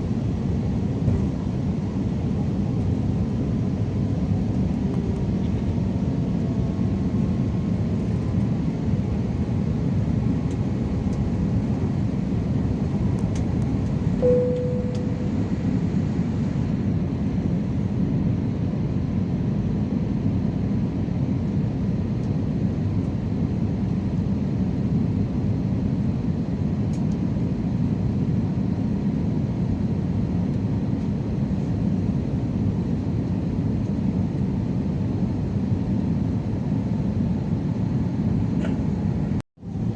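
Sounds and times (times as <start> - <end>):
airplane cabin engine rumble: 0.0 - 39.9
short tone: 14.2 - 15.9.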